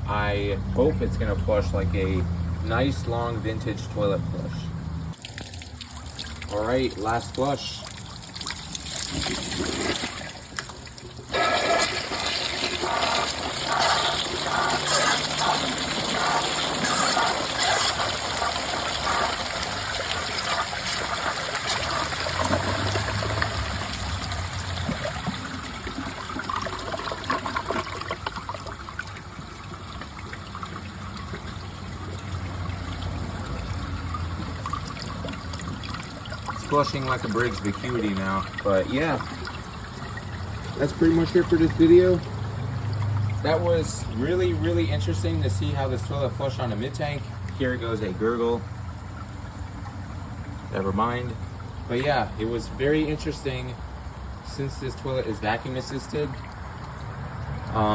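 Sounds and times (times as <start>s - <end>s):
toilet flushing: 5.2s - 47.5s.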